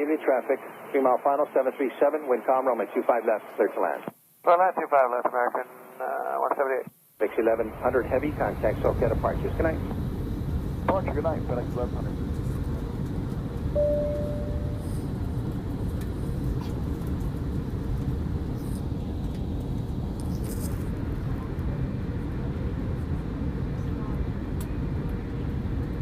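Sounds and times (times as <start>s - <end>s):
airplane cabin low rumble: 7.2s - 26.0s
short steady tone: 13.8s - 15.2s.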